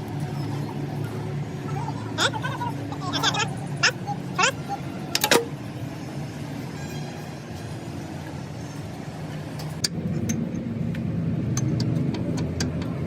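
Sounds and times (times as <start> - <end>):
low engine rumble: 0.0 - 13.0
sharp metallic clicks and taps: 9.6 - 13.0.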